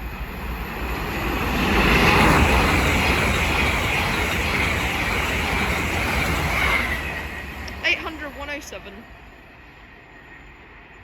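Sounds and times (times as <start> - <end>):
train passing at speed: 0.0 - 11.0.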